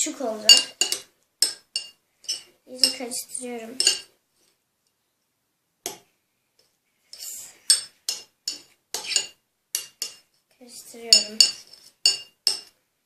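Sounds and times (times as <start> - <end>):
spoon clinking against dish: 0.5 - 3.0, 3.8 - 4.1, 7.7 - 10.2, 11.1 - 12.7.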